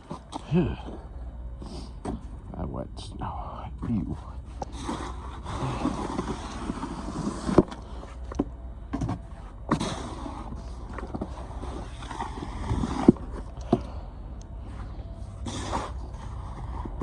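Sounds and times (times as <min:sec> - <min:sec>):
snow shovel scraping wet snow: 0:04.7 - 0:07.6.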